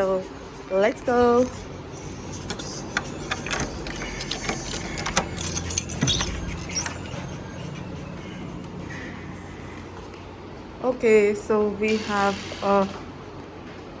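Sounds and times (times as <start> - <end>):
steady low hum: 0.0 - 14.0
light clicks and rattles: 1.0 - 7.4.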